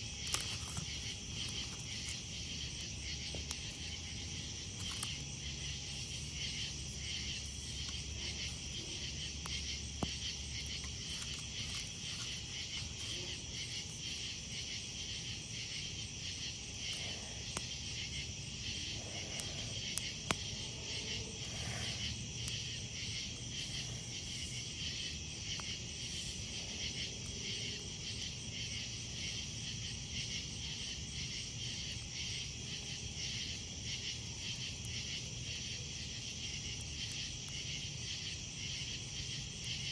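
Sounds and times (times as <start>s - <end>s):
campfire pops: 0.0s - 27.1s
night insects trilling: 0.0s - 39.9s.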